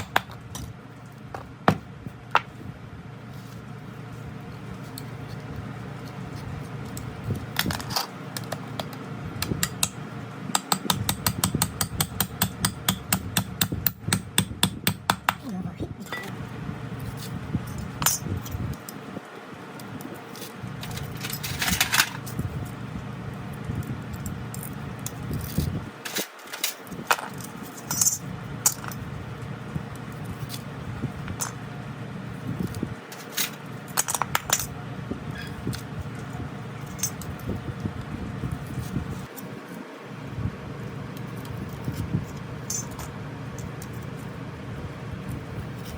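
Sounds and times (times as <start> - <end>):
metal tools clinking: 16.0 - 16.4, 17.2 - 18.6, 20.4 - 22.8, 24.1 - 29.0, 33.1 - 37.5, 41.3 - 44.3.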